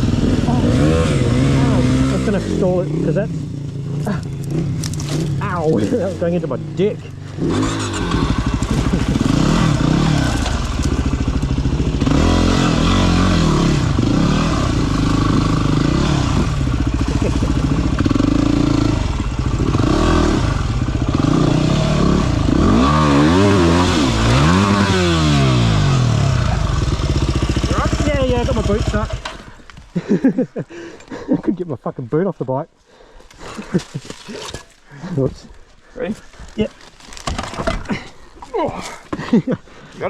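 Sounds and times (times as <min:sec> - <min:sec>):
dirt bike engine revving: 0:00.0 - 0:29.6.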